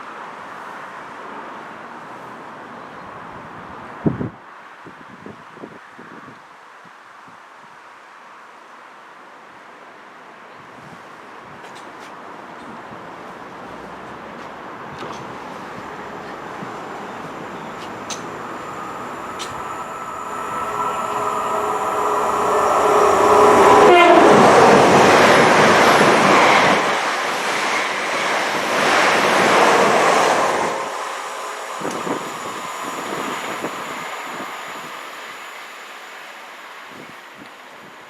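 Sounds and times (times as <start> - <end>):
train carriages rumbling past: 14.7 - 37.9
train horn: 17.3 - 27.2.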